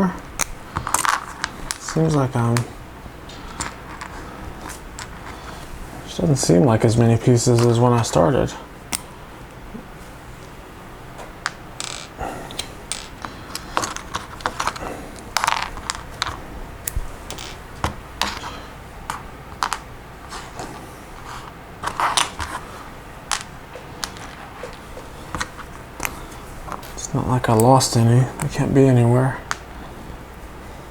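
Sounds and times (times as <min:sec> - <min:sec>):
plastic pieces clicking: 0:11.8 - 0:17.6.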